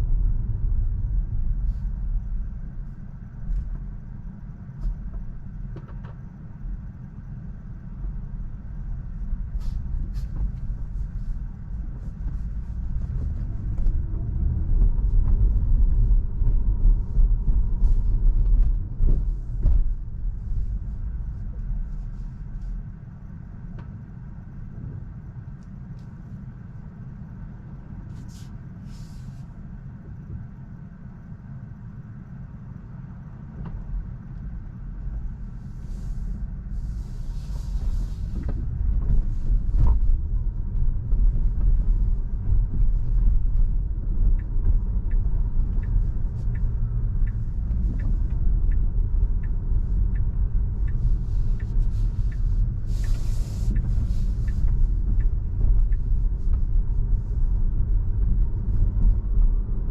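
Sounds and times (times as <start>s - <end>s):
car road and tyre rumble: 0.0s - 59.9s
light regular ticking: 38.1s - 59.9s.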